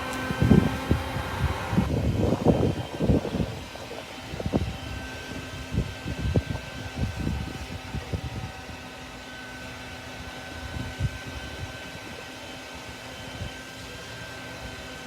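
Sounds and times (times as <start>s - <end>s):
wind buffeting microphone: 0.0s - 12.2s
shop vacuum whining: 0.0s - 15.0s.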